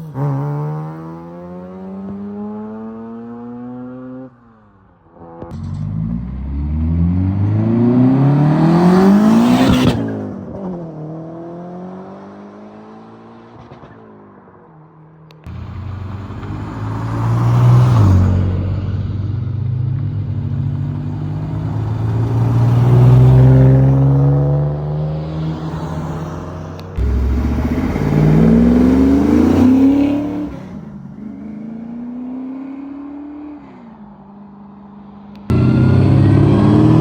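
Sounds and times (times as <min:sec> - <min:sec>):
car engines revving: 0:05.2 - 0:14.0, 0:15.4 - 0:34.0, 0:35.4 - 0:37.0.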